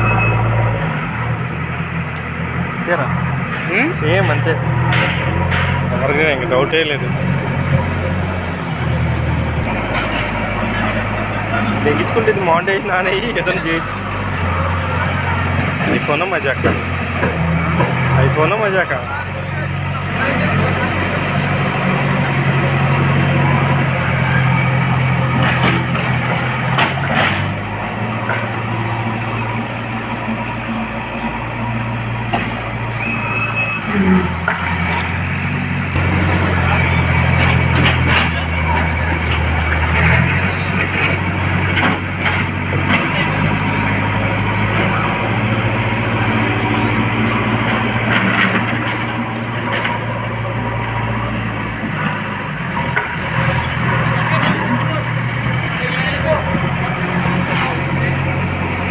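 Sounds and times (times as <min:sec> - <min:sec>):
heavy vehicle engine running: 0:00.0 - 0:58.9
knocks and clanks: 0:03.5 - 0:19.0, 0:19.6 - 0:33.0, 0:34.0 - 0:46.1.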